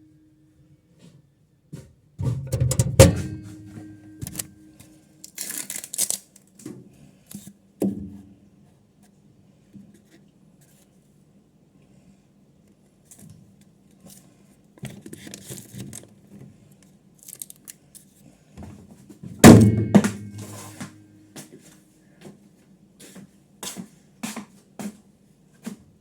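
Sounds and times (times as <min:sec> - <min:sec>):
handling knocks and thuds: 0:02.2 - 0:04.4, 0:19.4 - 0:20.9
microwave door shutting: 0:02.2 - 0:04.4
microwave oven humming: 0:02.2 - 0:04.8.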